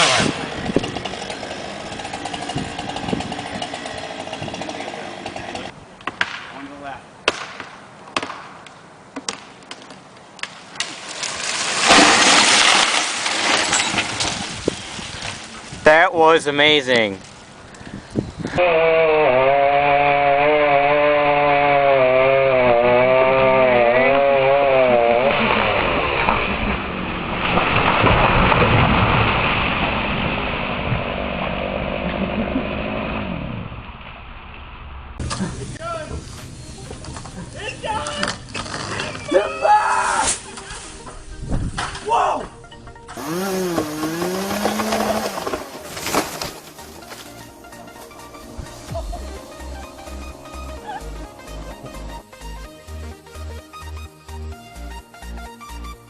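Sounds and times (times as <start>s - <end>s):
engine running: 0.0s - 5.7s, 43.1s - 53.1s
sharp wood cracks: 0.0s - 15.8s, 20.1s - 33.1s, 43.2s - 47.5s.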